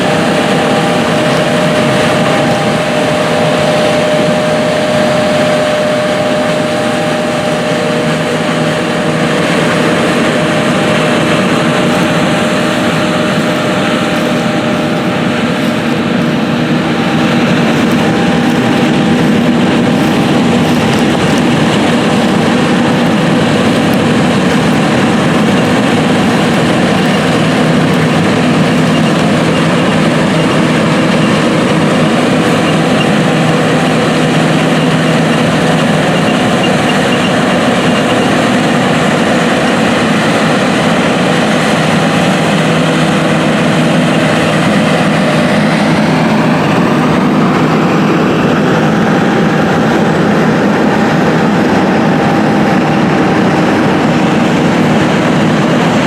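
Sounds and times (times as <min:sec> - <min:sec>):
farm machinery diesel engine running: 0:00.0 - 0:56.0.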